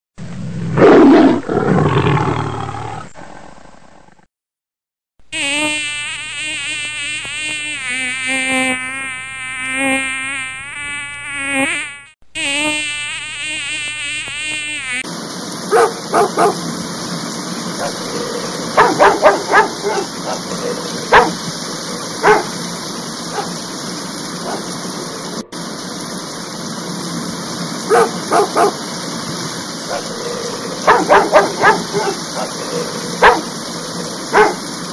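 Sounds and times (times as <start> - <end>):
bee buzzing: 5.3 - 15.1, 17.8 - 23.6
rushing water: 15.0 - 34.9
dogs barking and yipping: 15.7 - 16.6, 17.8 - 22.6, 23.3 - 23.6, 24.4 - 24.8, 27.9 - 28.8, 29.9 - 33.6, 34.3 - 34.6.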